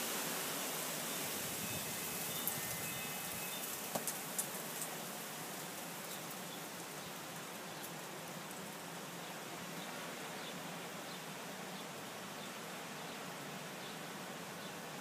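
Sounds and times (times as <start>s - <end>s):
dust storm wind hissing: 0.0s - 8.9s
faint high chirps: 1.6s - 3.8s.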